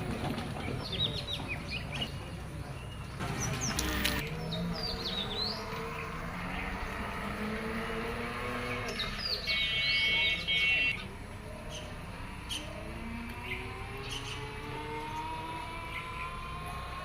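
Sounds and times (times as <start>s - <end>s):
faint low engine hum: 0.0s - 17.0s
small birds chirping: 0.6s - 17.0s
steady high-pitched bird call: 8.8s - 15.1s.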